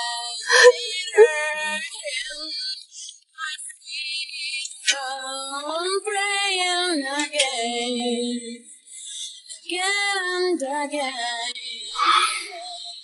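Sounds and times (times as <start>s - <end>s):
high voice singing held notes: 0.4s - 2.5s, 11.8s - 13.0s.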